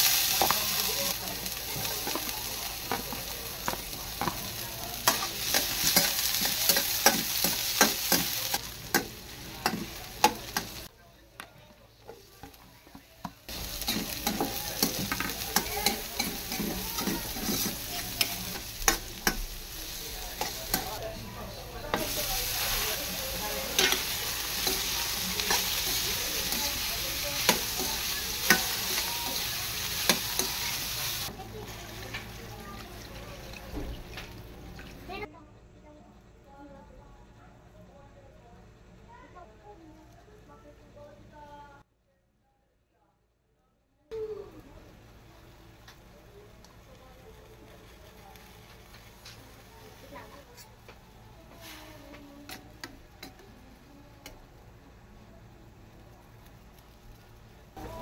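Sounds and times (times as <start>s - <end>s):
food frying in oil: 0.0s - 10.9s, 12.0s - 35.3s, 44.6s - 58.0s
metal utensil clacking against wok: 27.4s - 29.0s.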